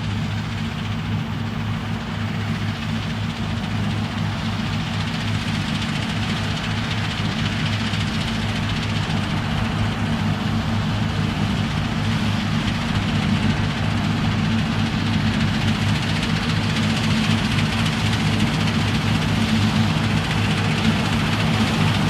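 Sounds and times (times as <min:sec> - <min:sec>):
combine harvester engine drone: 0:00.0 - 0:22.0
steady rushing noise: 0:00.0 - 0:22.0.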